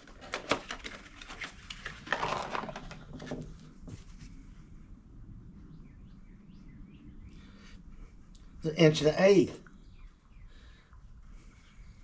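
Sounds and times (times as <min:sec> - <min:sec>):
rustling and handling noise: 0:00.0 - 0:04.8.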